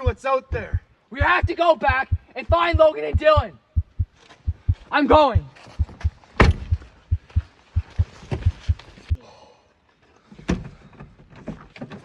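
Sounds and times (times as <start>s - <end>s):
fast run of low thuds: 0.5s - 9.2s.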